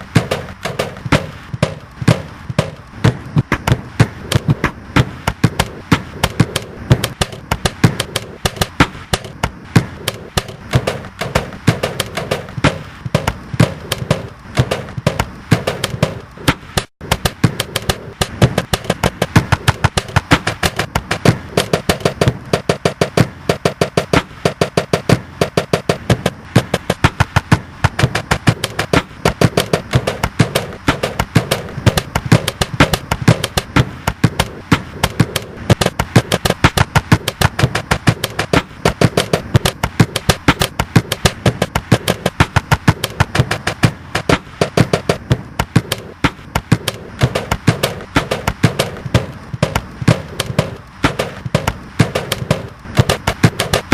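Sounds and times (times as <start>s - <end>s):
rhythmic knocks and clicks: 0.0s - 53.9s.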